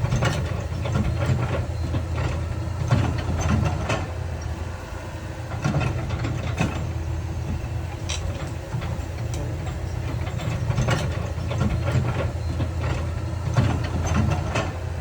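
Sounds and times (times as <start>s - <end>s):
heavy machinery rumbling: 0.0s - 15.0s
sharp clanks and knocks: 7.5s - 14.8s.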